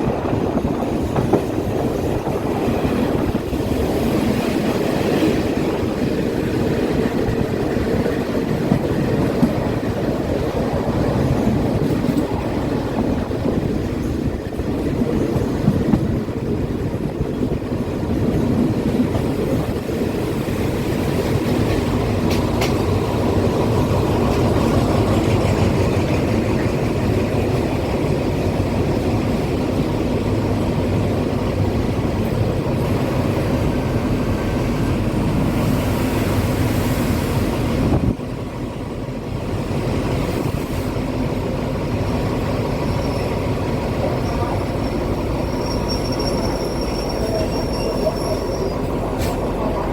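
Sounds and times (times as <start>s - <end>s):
train rumbling on track: 0.0s - 49.9s.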